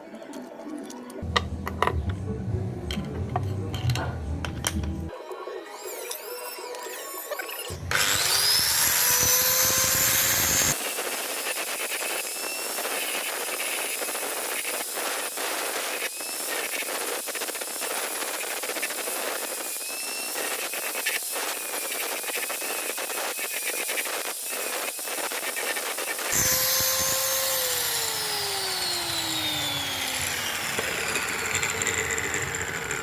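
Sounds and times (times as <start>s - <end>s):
power tool grinding whine: 6.6s - 33.0s.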